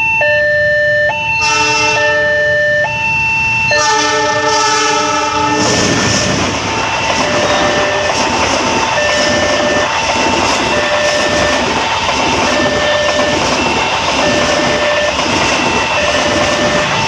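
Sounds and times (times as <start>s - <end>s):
two-note alternating tone: 0.0s - 4.5s
train wheels on rails: 2.8s - 17.0s.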